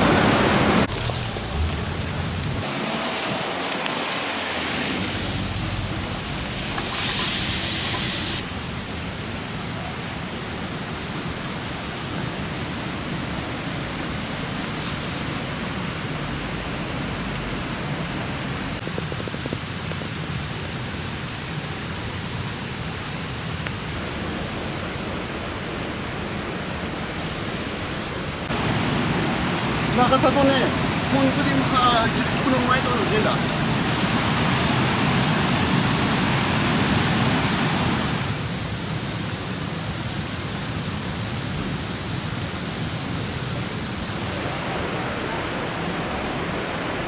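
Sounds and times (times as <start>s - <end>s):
river in flood roaring: 0.0s - 47.0s
bright hiss: 6.1s - 8.4s.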